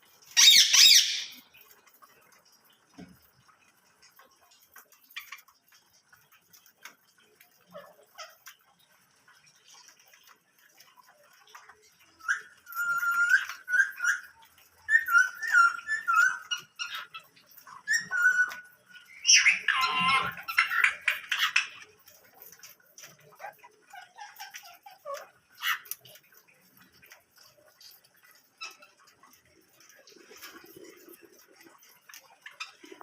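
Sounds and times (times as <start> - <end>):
birds harsh chattering calls: 0.4 - 1.4.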